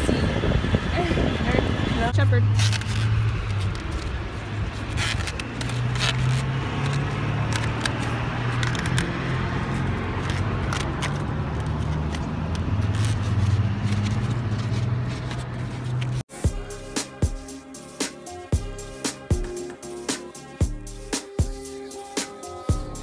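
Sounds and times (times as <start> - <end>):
engine and road drone: 0.0 - 17.0.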